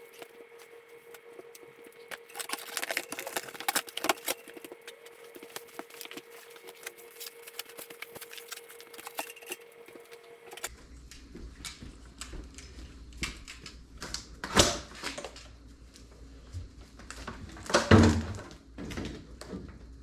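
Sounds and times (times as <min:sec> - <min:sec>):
steady hum: 0:00.0 - 0:17.5
hand tools and metal parts clinking: 0:02.1 - 0:09.7.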